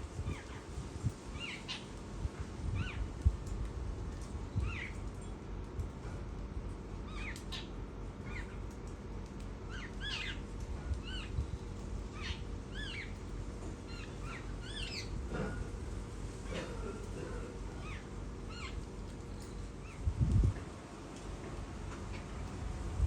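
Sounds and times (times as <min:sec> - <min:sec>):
low background hum: 0:00.0 - 0:23.0
birds chirping: 0:12.1 - 0:13.2, 0:13.9 - 0:15.2.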